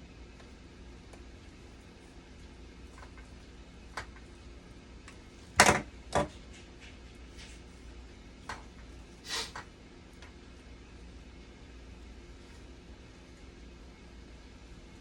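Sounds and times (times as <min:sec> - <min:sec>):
knocks and clatters of objects: 0:05.6 - 0:07.0.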